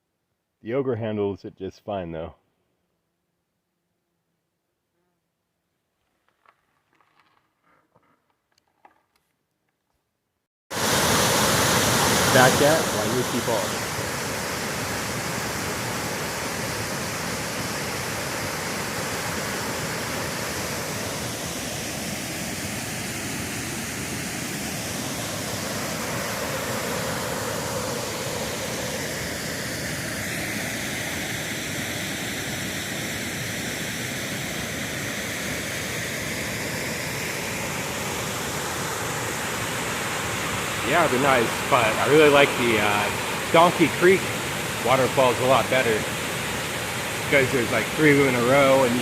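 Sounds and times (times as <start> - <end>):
waterfall rushing: 10.7 - 31.7, 36.6 - 49.0.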